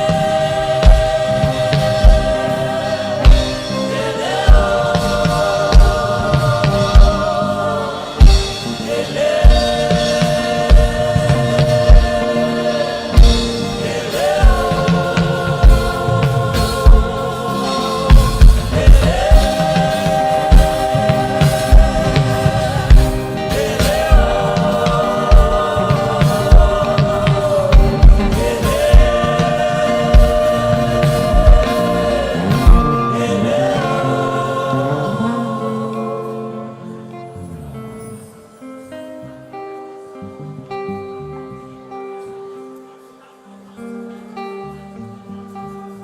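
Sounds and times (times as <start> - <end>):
steady drum beat: 0.0 - 34.2
group singing gospel: 0.0 - 40.1.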